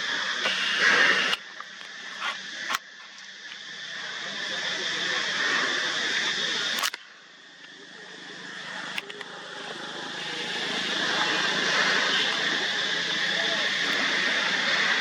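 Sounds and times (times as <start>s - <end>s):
outdoor background hiss: 0.0s - 15.0s
sharp click: 6.8s - 7.1s.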